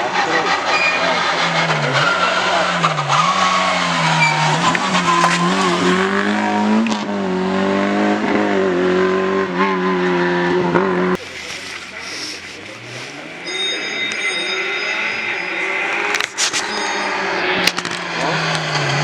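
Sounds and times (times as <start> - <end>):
car engine at high revs: 0.0 - 19.0
tyre squeal: 0.2 - 6.0, 11.2 - 19.0.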